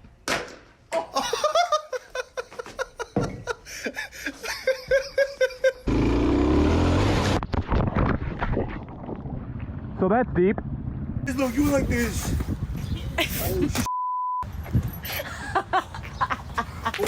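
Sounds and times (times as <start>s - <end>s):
people laughing: 1.1s - 5.9s, 13.0s - 13.9s, 15.1s - 17.0s.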